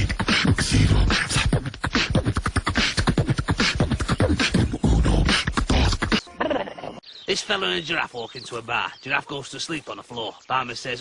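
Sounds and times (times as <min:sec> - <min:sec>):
beatboxing clicks and pops: 0:00.0 - 0:06.2.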